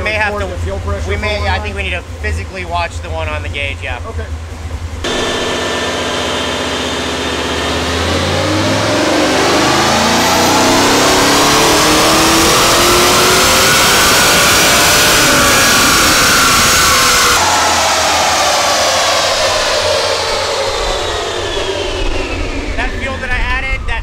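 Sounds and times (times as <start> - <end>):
car engine revving at full throttle: 4.9 - 23.5.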